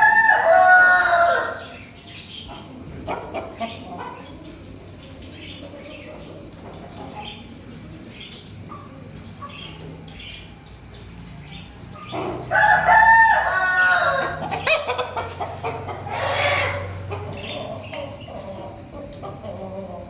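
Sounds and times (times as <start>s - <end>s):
rooster crowing: 0.0s - 1.8s, 12.1s - 15.0s, 16.0s - 17.1s
faint clucks and chirps: 0.0s - 20.0s.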